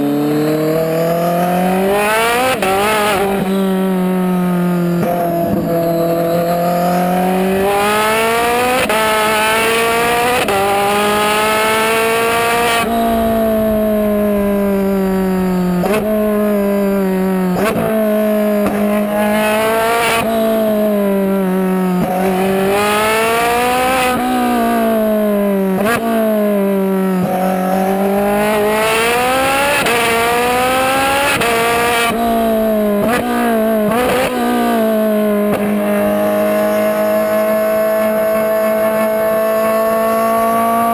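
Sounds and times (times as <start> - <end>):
sports car engine revving: 0.0 - 40.9.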